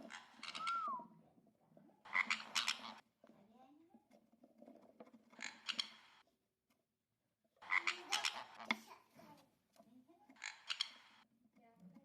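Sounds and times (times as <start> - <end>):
parrot raspy croaking calls: 2.1 - 3.0.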